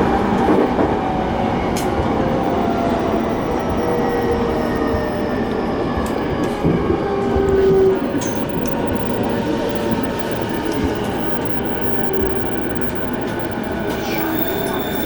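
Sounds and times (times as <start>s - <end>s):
train wheels rumbling on rails: 0.0s - 15.0s
traction motor whine: 2.0s - 15.0s
held squeal: 7.4s - 15.0s.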